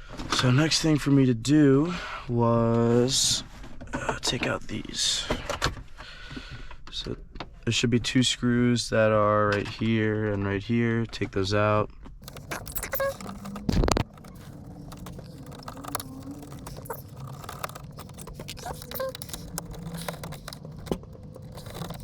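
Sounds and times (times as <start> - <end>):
screwdriver scraping: 12.2 - 22.0.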